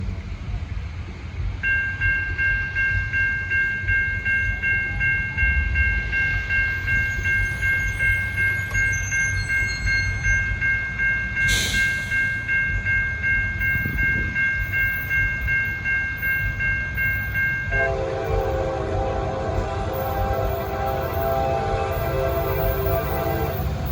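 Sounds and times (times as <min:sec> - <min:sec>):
locomotive and train rumble: 0:00.0 - 0:23.9
locomotive air horn: 0:17.7 - 0:23.9.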